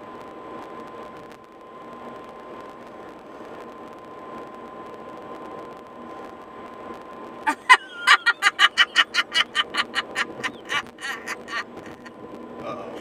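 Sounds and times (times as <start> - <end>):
person cackling: 7.5 - 12.1
car road noise: 7.5 - 13.0.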